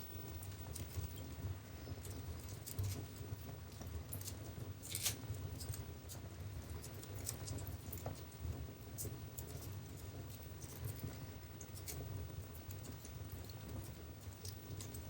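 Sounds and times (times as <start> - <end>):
low rumble of flames: 0.0 - 15.0
wood fire crackling: 0.0 - 15.0.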